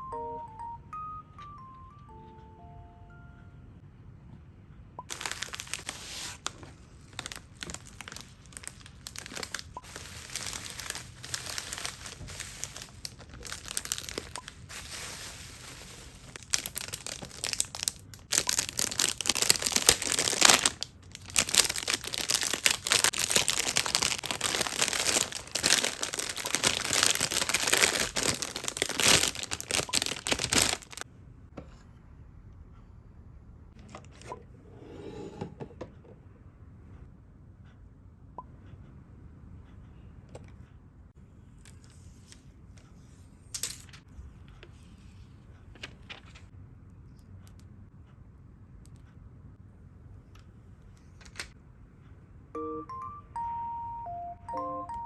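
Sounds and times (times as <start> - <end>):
packaging crinkling: 5.1 - 31.0.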